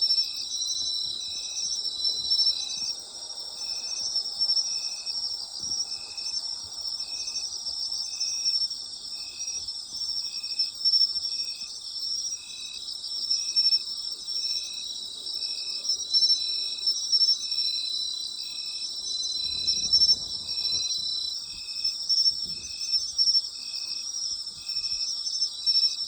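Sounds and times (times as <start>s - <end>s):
insects trilling: 0.0s - 26.0s
insect chirping in short pulses: 18.4s - 25.6s.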